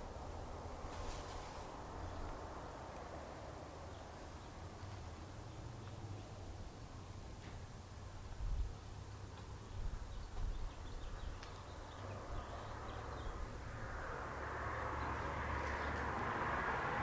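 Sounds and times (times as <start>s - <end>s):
broad hiss: 0.8s - 2.1s
wind rumbling on microphone: 8.3s - 8.8s, 9.7s - 17.0s.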